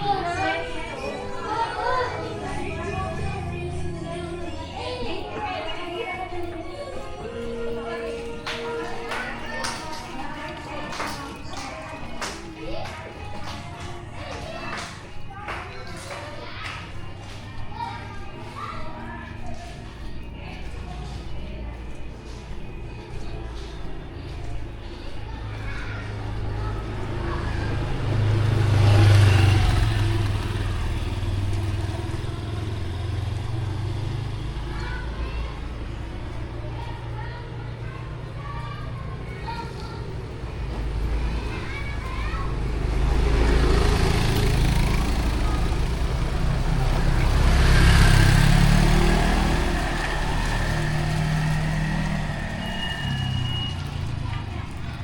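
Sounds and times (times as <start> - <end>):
vehicle passing: 0.0 - 55.0
vehicle passing on wet road: 26.1 - 35.8, 40.5 - 55.0.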